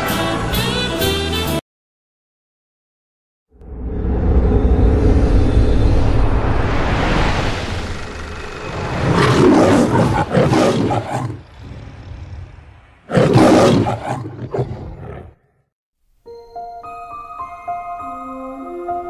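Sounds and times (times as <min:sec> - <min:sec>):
loud swell of noise: 0:03.6 - 0:10.2
lion roaring: 0:07.8 - 0:15.6.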